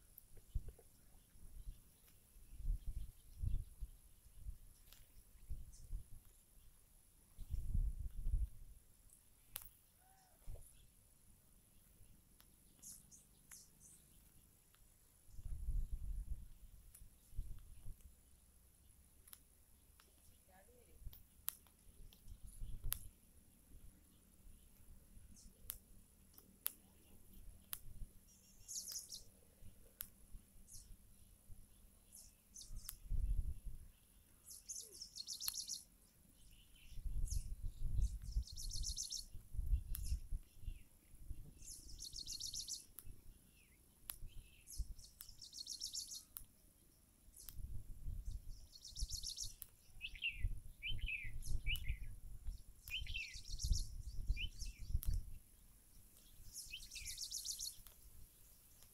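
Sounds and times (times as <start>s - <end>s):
birds chirping: 0.0s - 58.9s
faint clicks: 4.8s - 5.2s, 9.1s - 10.8s, 11.8s - 15.5s, 16.8s - 18.2s, 19.2s - 20.4s, 21.0s - 23.2s, 24.6s - 28.0s, 28.6s - 30.9s, 32.2s - 33.1s, 34.3s - 35.8s, 39.3s - 40.6s, 42.6s - 43.2s, 44.0s - 44.4s, 45.0s - 46.6s, 47.4s - 47.7s, 49.5s - 49.8s, 51.7s - 53.2s, 54.9s - 55.3s, 56.1s - 58.9s.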